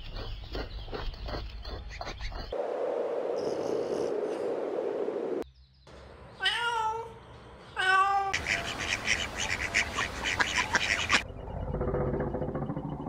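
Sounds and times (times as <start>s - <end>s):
ducks quacking: 8.4s - 11.2s.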